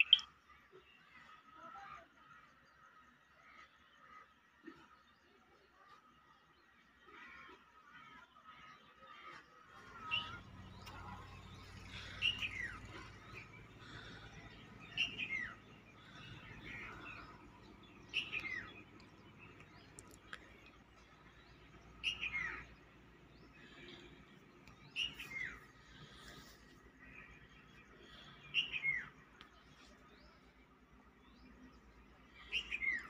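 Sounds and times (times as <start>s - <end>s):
bird chirping calls: 0.0s - 0.3s, 9.8s - 33.0s.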